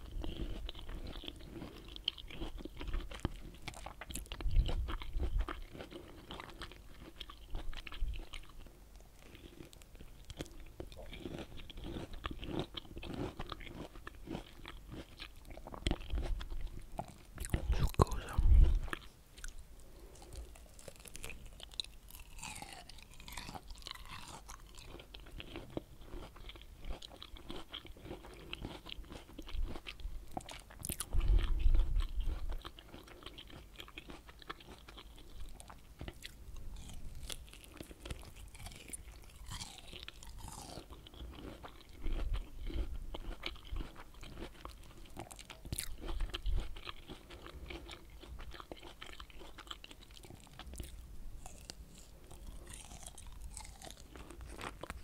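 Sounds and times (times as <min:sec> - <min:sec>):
juicy fruit crunching bites: 0:09.5 - 0:55.0
wet mouth clicks: 0:17.4 - 0:19.6.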